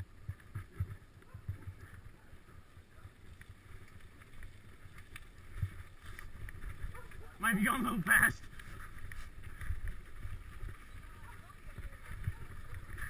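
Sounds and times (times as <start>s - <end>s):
faint clicks: 3.2s - 7.2s
wind buffeting microphone: 9.4s - 13.0s.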